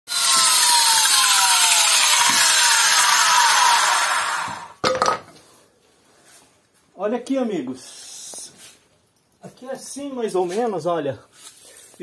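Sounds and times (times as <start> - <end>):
angle grinder cutting masonry: 0.1 - 4.8.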